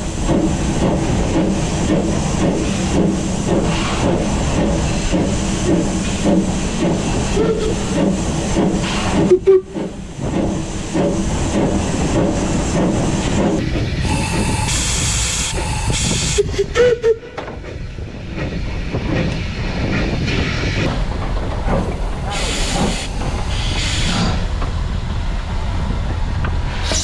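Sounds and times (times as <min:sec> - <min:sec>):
steam hissing: 0:00.0 - 0:16.9, 0:21.8 - 0:24.6
steam locomotive chuffing: 0:00.0 - 0:27.0.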